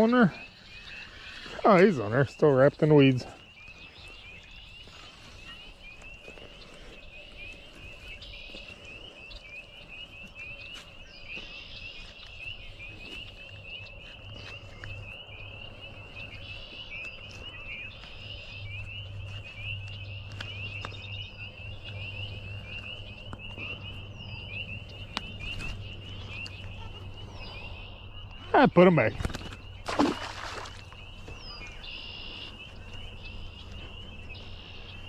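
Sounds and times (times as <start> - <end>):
frogs calling: 0.0 - 35.0
short bird calls: 20.2 - 35.0.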